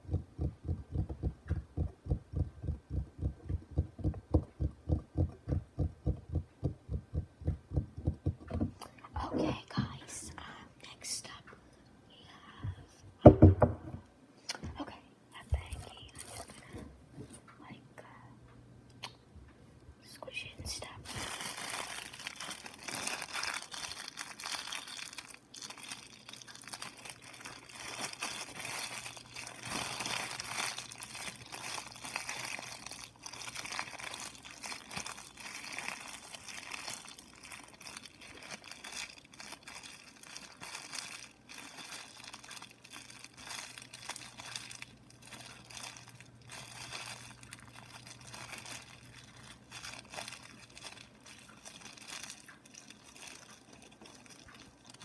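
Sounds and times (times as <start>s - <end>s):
material crinkling and crackling: 0.0s - 10.0s, 15.5s - 17.6s, 20.5s - 55.0s.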